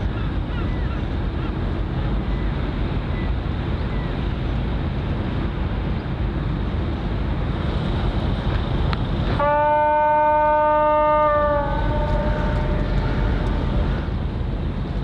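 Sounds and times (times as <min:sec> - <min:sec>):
wind on microphone: 0:10.9 - 0:15.0
low rumble: 0:11.4 - 0:15.0.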